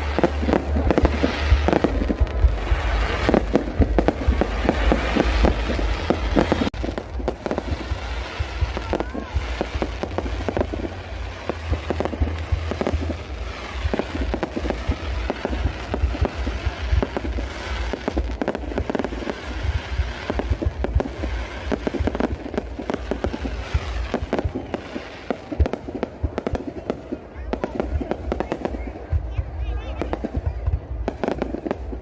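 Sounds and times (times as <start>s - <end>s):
low rumble: 0.0s - 24.7s
fireworks cracking and popping: 0.0s - 32.0s.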